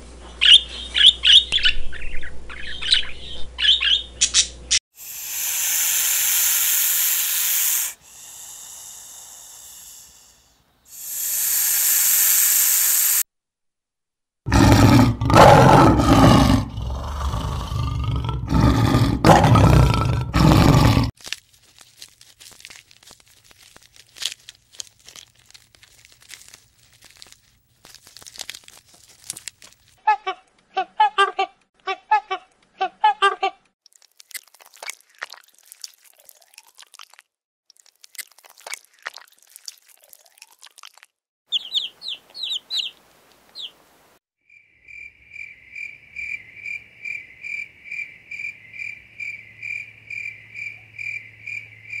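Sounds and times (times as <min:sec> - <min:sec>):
hissing: 0:05.0 - 0:13.3
animal growling roar: 0:14.5 - 0:21.1.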